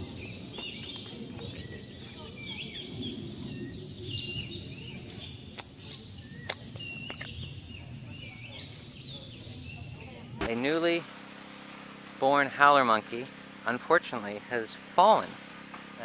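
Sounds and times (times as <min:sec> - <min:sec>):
high chirping bird calls: 0:00.0 - 0:10.4
low outdoor rumble: 0:00.0 - 0:16.0.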